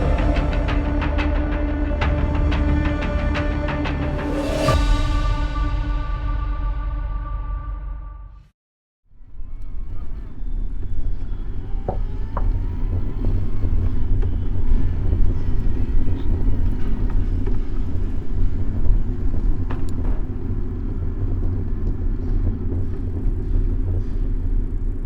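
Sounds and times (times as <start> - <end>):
low rumble from bike ride: 0.0 - 4.9, 9.1 - 25.0
city street traffic: 9.1 - 25.0.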